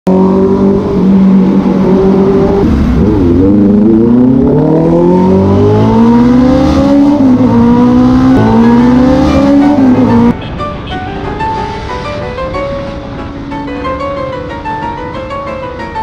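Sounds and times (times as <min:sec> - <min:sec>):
motorcycle engine accelerating: 0:00.1 - 0:10.3
music: 0:08.3 - 0:16.0.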